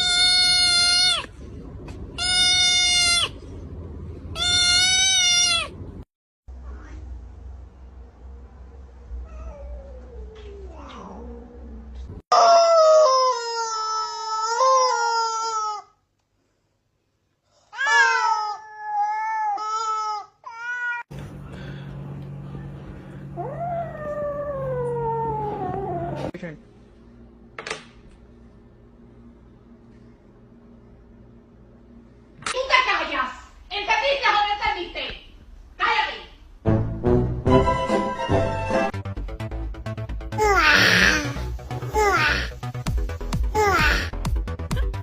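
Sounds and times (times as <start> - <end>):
cat yowling: 4.4 - 5.8
low hum: 5.7 - 12.2, 21.1 - 32.5.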